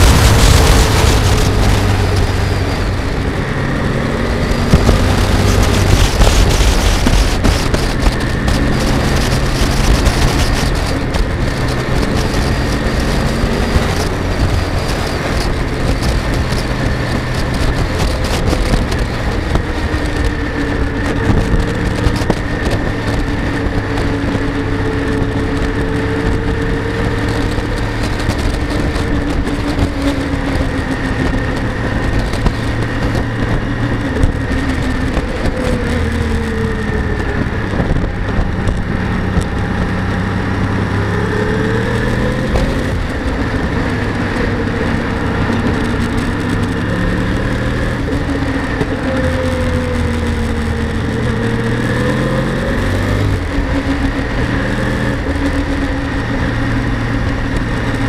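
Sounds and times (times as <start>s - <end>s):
motorcycle engine cruising: 0.0s - 58.0s
wind noise on microphone: 0.0s - 58.0s.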